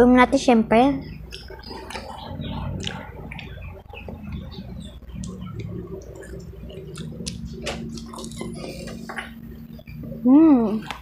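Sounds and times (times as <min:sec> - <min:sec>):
child chewing food: 0:01.0 - 0:11.0
wet mouth clicks and smacks: 0:01.3 - 0:04.2, 0:05.2 - 0:09.3.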